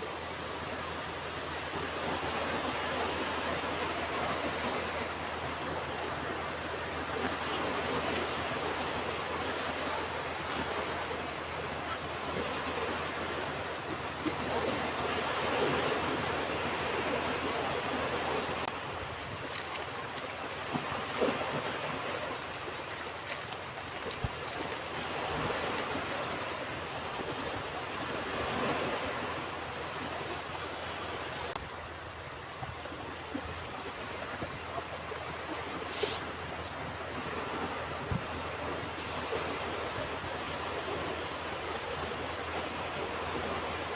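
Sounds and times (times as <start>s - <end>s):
ocean waves washing onto beach: 0.0s - 43.9s
brief sharp hiss: 35.9s - 36.3s.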